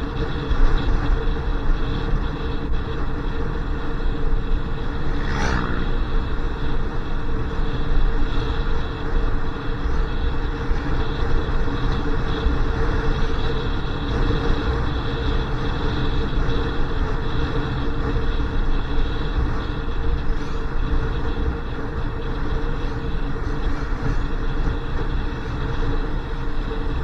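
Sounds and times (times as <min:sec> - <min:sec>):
motorcycle engine hum: 0:00.0 - 0:27.0
wind noise: 0:00.0 - 0:27.0.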